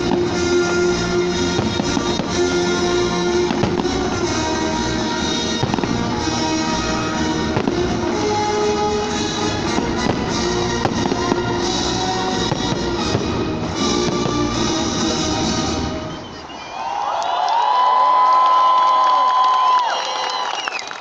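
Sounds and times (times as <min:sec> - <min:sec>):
music: 0:00.0 - 0:16.4
fireworks shells bursting: 0:00.0 - 0:16.7.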